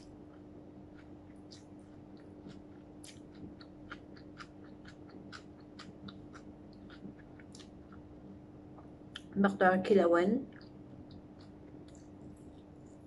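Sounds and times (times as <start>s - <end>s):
person chewing food: 0.0s - 9.4s, 10.5s - 13.0s
steady low hum: 0.0s - 13.0s.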